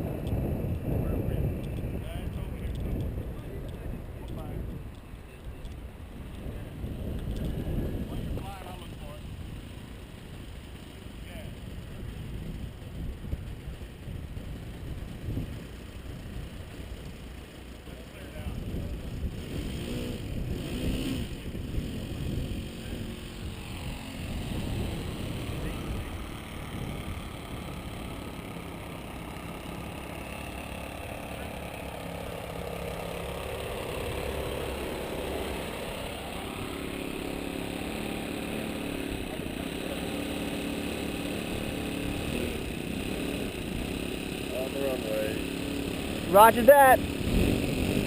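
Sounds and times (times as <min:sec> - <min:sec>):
wind buffeting microphone: 0:00.0 - 0:09.6, 0:11.6 - 0:16.7, 0:18.4 - 0:28.2
electric motors whining: 0:00.1 - 0:48.0.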